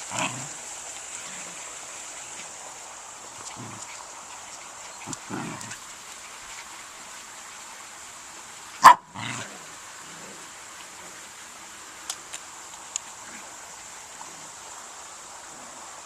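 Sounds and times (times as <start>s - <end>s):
faint ticks: 3.2s - 7.0s, 12.0s - 13.6s
dog barking: 8.8s - 9.4s.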